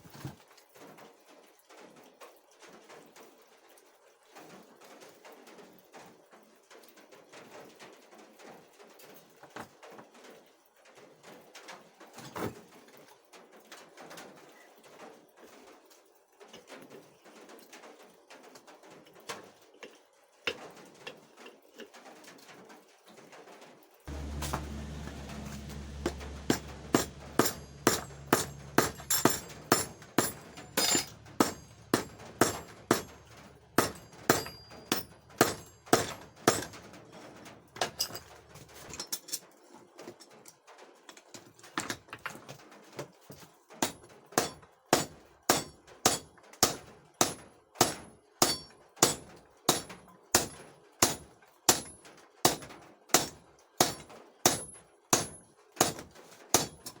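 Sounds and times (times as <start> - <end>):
low steady hum: 24.1 - 36.8
hammer striking steel on anvil: 24.1 - 36.9, 43.8 - 56.0, 56.6 - 57.0.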